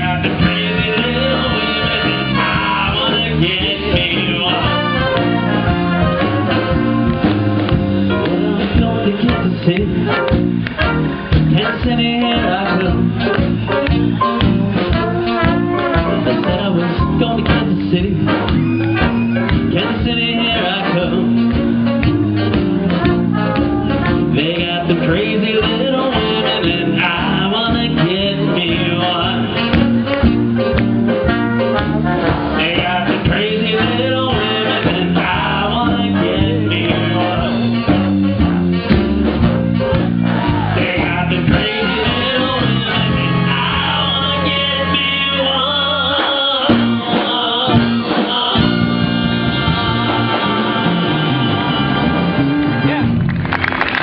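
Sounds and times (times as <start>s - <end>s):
live blues band playing: 0.0s - 54.0s.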